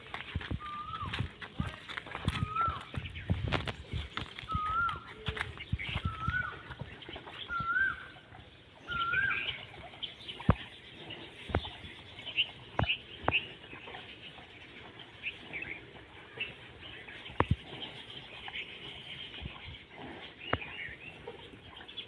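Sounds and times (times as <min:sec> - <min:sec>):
bird whistled call: 0:00.6 - 0:01.2, 0:02.4 - 0:02.9, 0:04.5 - 0:05.3, 0:05.9 - 0:06.6, 0:07.4 - 0:08.1, 0:08.8 - 0:09.6
faint high bird chirps: 0:04.4 - 0:10.8.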